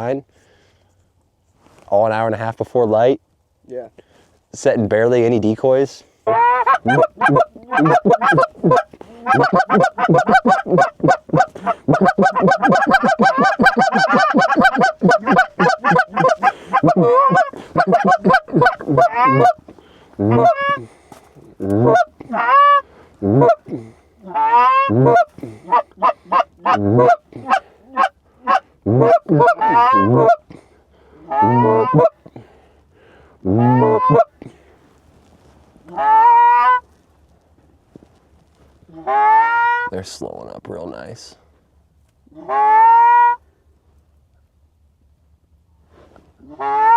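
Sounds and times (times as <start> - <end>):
goose honking and clucking: 6.3 - 19.6, 20.2 - 20.9, 21.6 - 30.5, 31.3 - 32.2, 33.5 - 34.3, 35.9 - 36.8, 39.0 - 39.9, 42.3 - 43.4, 46.4 - 46.9.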